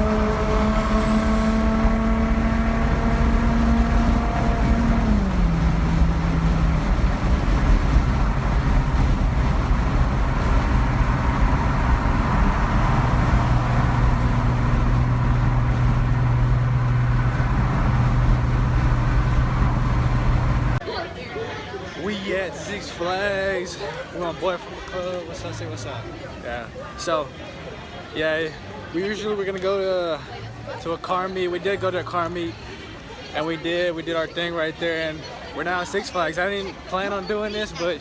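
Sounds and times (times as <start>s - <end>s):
car engine droning: 0.0s - 20.8s
low rumble: 5.0s - 20.8s.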